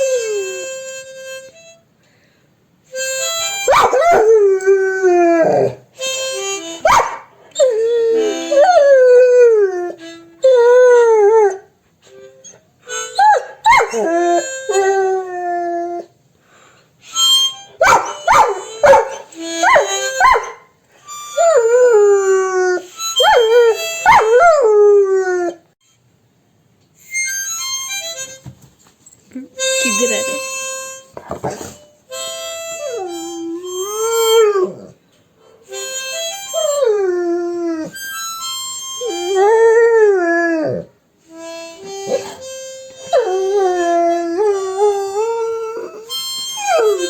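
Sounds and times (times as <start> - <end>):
dog howling: 3.7 - 5.8, 13.3 - 16.1, 21.4 - 25.6, 39.0 - 40.9.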